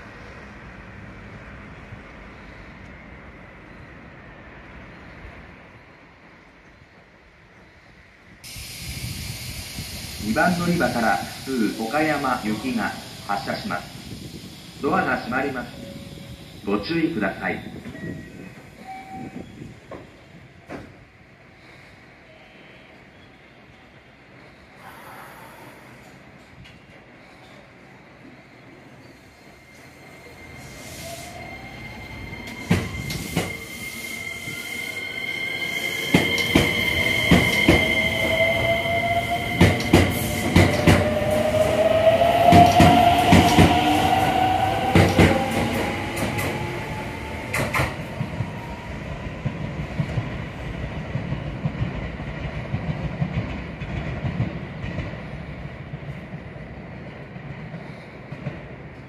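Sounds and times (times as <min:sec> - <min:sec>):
high wheel squeal: 0:29.0 - 0:40.5.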